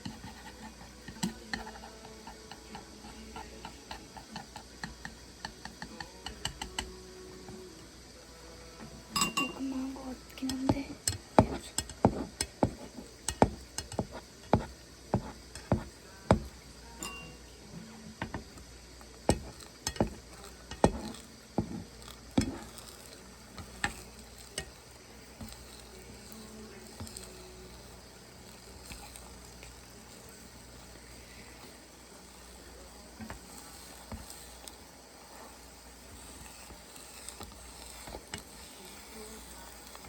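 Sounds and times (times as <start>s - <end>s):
utensils clinking against cookware: 9.1s - 9.8s, 10.4s - 16.4s, 17.0s - 17.4s, 19.2s - 40.0s.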